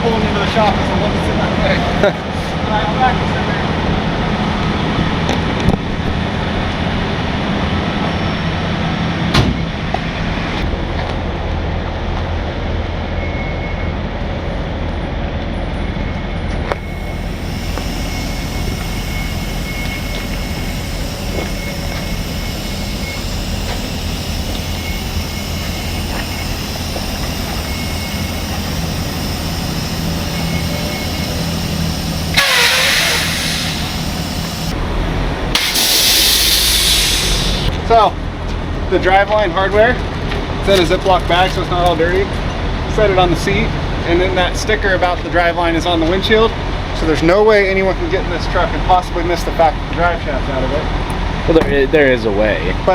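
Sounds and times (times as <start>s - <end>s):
diesel truck engine idling: 14.3s - 52.9s
air hissing: 16.8s - 34.8s, 35.5s - 37.8s.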